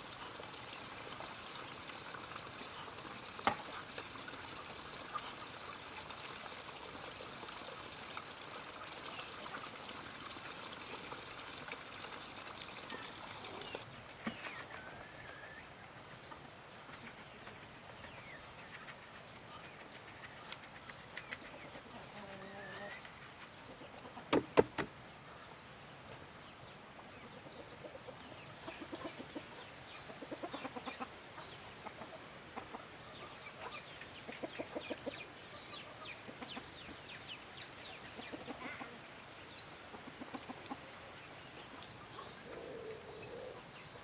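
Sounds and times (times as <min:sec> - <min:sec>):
water running and trickling: 0:00.0 - 0:13.9
sharp knock: 0:24.3 - 0:24.9.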